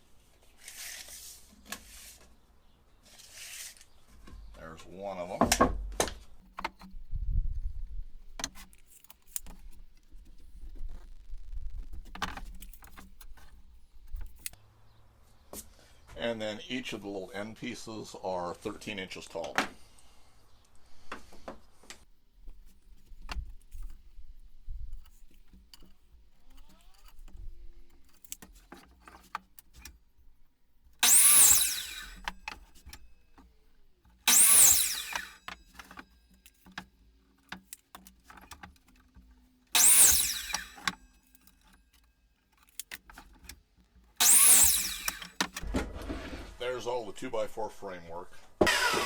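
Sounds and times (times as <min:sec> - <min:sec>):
wood being handled: 0:00.0 - 0:14.6, 0:21.0 - 0:46.6
miter saw cutting wood: 0:31.0 - 0:33.1, 0:34.2 - 0:36.8, 0:39.8 - 0:42.1, 0:44.1 - 0:46.9, 0:48.6 - 0:49.0.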